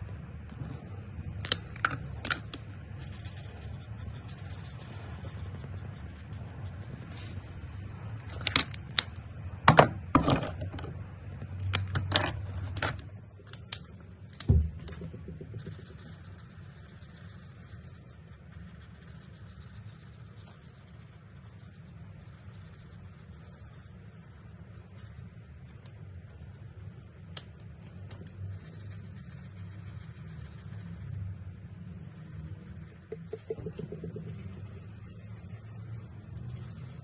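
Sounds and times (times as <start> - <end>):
marker nib stroking paper: 0.0 - 9.0, 15.0 - 27.4, 28.3 - 37.0
plastic markers clicking and clattering: 1.4 - 3.4.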